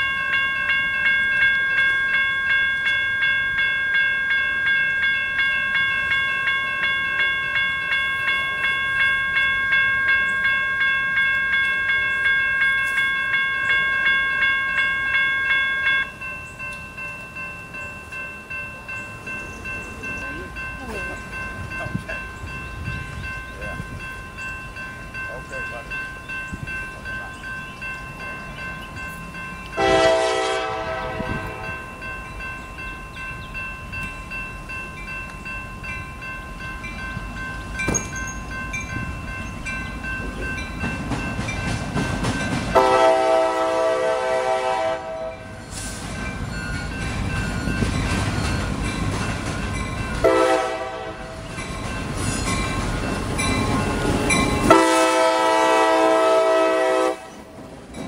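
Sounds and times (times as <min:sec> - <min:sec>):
level crossing bell ringing: 0:00.0 - 0:43.0
train rumbling: 0:00.0 - 0:58.0
locomotive air horn blasts: 0:29.8 - 0:31.7, 0:42.8 - 0:45.5, 0:50.2 - 0:51.4, 0:54.7 - 0:57.5.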